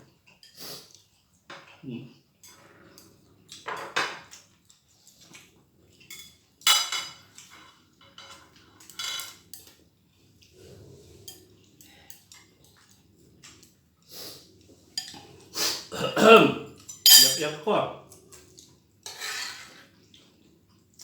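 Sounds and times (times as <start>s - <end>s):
cutlery and dishes clinking: 6.1s - 9.8s, 16.8s - 17.6s.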